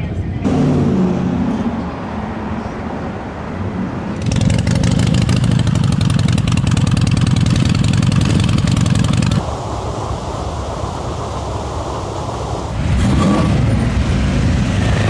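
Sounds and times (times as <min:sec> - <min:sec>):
street noise: 0:00.0 - 0:15.0
motorcycle engine running: 0:03.8 - 0:09.4.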